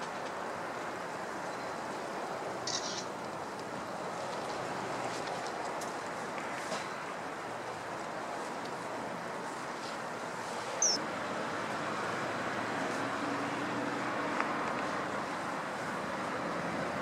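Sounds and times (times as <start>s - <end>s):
shrill falling bird call: 10.8s - 11.0s.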